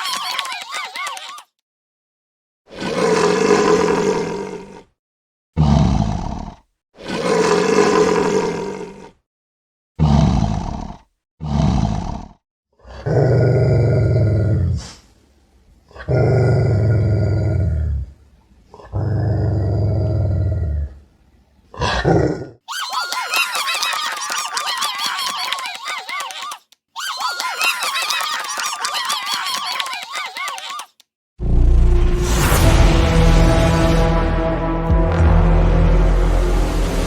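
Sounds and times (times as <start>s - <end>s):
animal roars and growls: 2.7s - 5.0s, 5.6s - 9.2s, 10.0s - 15.0s, 15.9s - 21.0s, 21.7s - 22.6s.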